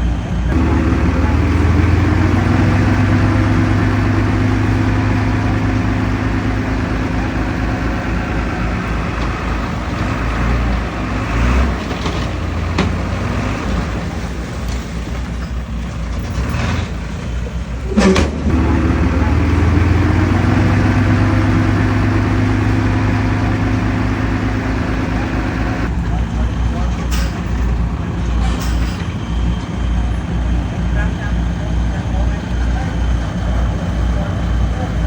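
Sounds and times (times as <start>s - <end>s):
heavy diesel engine droning: 0.0s - 35.0s
sharp metal clank: 27.1s - 27.8s.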